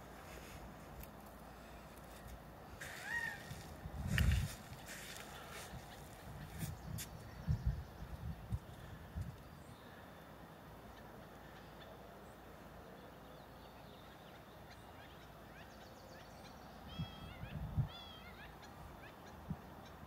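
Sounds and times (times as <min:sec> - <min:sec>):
faint steady background noise: 0:00.0 - 0:20.0
bird chirping calls: 0:10.8 - 0:20.0.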